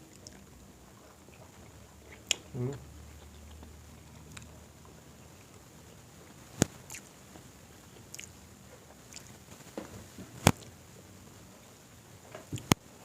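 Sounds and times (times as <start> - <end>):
chewing and mouth noises: 0.0 - 7.2, 7.9 - 9.6.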